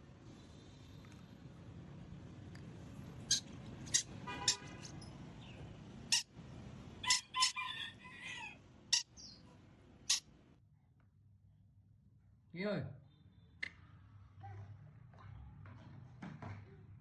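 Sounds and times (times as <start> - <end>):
parrot calling: 3.2 - 5.0, 6.1 - 6.3, 7.0 - 9.4.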